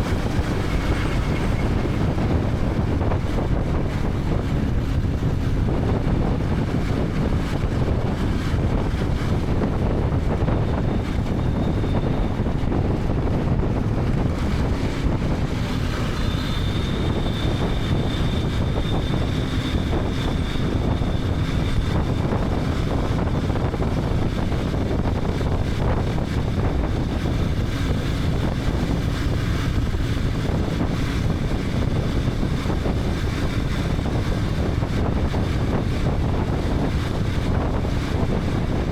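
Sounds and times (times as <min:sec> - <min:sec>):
road noise: 0:00.0 - 0:38.9
wind over microphone: 0:00.0 - 0:38.9.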